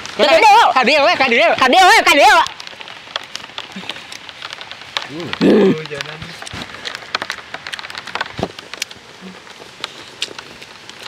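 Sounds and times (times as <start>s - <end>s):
sharp ticks and crackles: 0.0s - 11.0s
steady rain: 0.0s - 11.0s
crunchy chewing: 3.1s - 11.0s.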